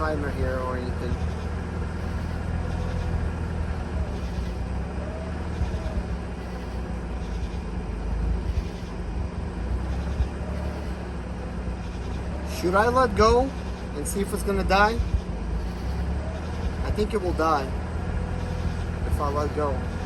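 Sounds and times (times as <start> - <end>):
rotary engine running near idle: 0.0 - 20.0.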